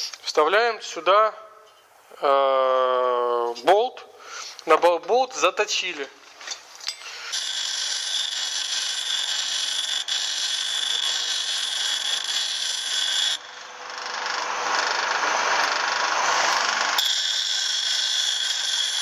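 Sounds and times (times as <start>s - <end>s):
grinding on steel: 7.3s - 19.0s
power tool high whine: 7.3s - 19.0s.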